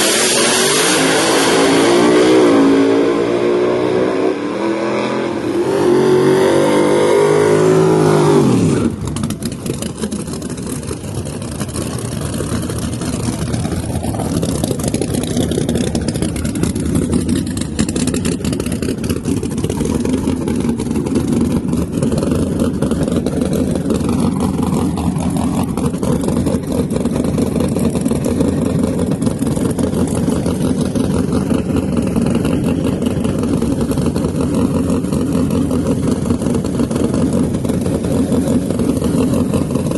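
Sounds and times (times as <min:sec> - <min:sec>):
car engine revving hard: 0:00.0 - 0:09.5
loud engine idling roughly: 0:08.3 - 0:39.9.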